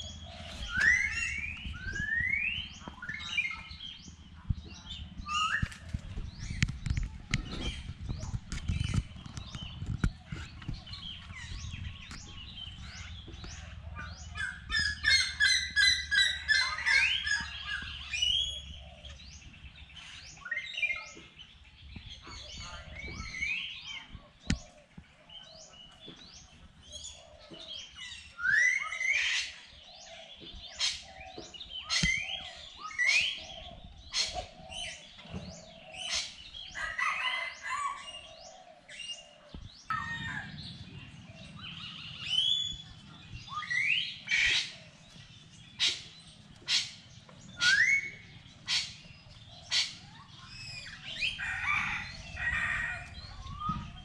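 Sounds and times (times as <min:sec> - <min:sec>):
birds chirping and squawking: 0:00.0 - 0:54.0.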